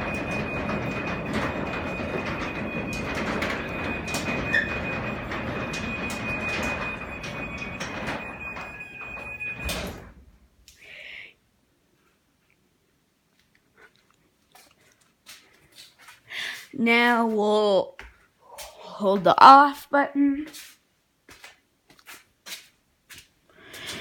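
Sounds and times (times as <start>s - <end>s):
garage door opener running: 0.0s - 10.4s
garage door rolling down: 0.0s - 10.4s.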